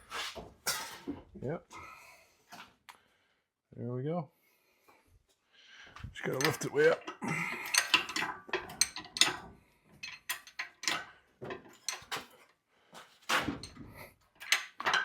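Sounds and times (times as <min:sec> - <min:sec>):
metallic clanks and clinks: 0:06.2 - 0:12.4, 0:13.4 - 0:15.0.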